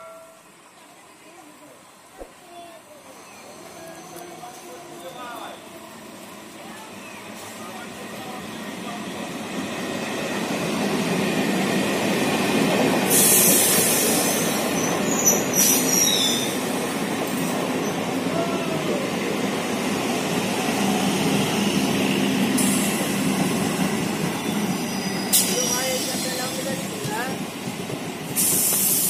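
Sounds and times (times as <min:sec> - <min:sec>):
high wheel squeals: 0:03.1 - 0:04.6, 0:13.1 - 0:16.6, 0:24.4 - 0:26.7
train wheels rumbling on rails: 0:03.1 - 0:29.0
burst of hiss: 0:13.1 - 0:14.6, 0:28.3 - 0:29.0.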